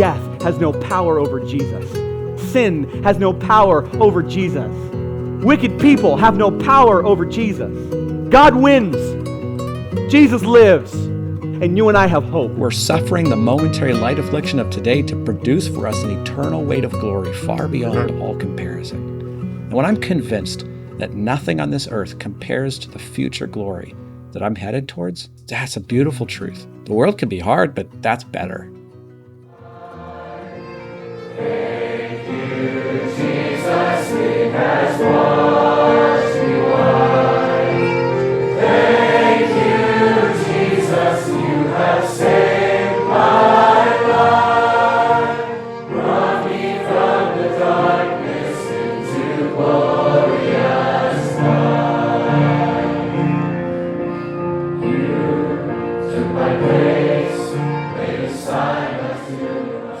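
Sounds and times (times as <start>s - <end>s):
choir singing: 0.0s - 9.3s, 29.5s - 60.0s.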